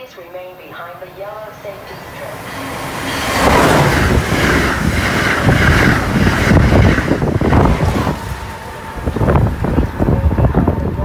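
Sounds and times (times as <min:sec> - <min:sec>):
train passing at speed: 0:00.1 - 0:11.0
wind buffeting microphone: 0:01.4 - 0:11.0.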